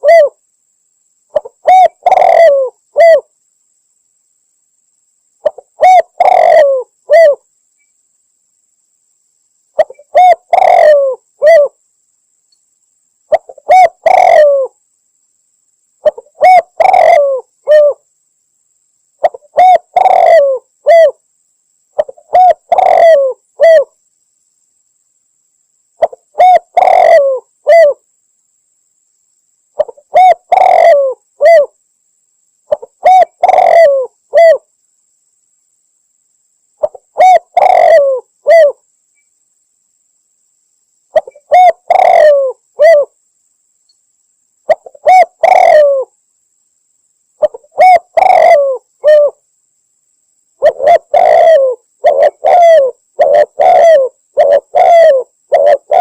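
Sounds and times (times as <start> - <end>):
dove cooing: 0.0 - 0.4, 1.3 - 3.3, 5.4 - 7.4, 9.8 - 11.8, 13.3 - 14.8, 16.0 - 18.0, 19.2 - 21.2, 22.0 - 24.0, 26.0 - 28.0, 29.8 - 31.8, 32.7 - 34.7, 36.8 - 38.8, 41.1 - 43.2, 44.7 - 46.1, 47.4 - 49.4, 50.6 - 56.0.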